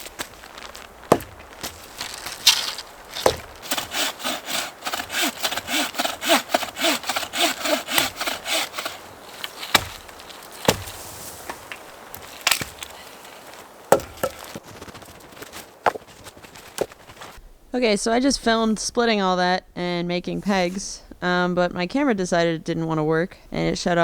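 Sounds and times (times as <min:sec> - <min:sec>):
sharp wooden knocks: 0:00.0 - 0:09.0, 0:09.6 - 0:12.9, 0:13.9 - 0:14.6
saw cutting wood: 0:01.1 - 0:11.2.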